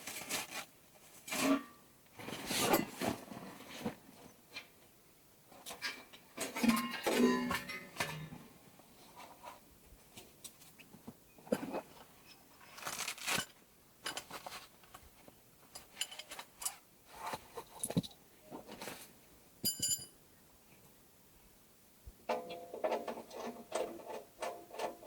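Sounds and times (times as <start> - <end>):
objects being handled: 5.6 - 19.1.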